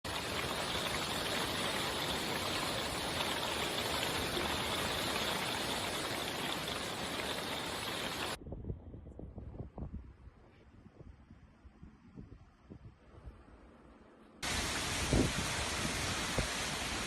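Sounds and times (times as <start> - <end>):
heavy rain pouring: 0.0 - 8.4, 14.4 - 17.0.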